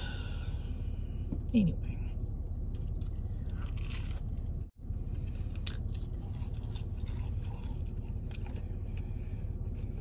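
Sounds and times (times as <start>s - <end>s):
steady low hum: 0.0s - 10.0s
chewing chicken nugget: 5.2s - 9.0s.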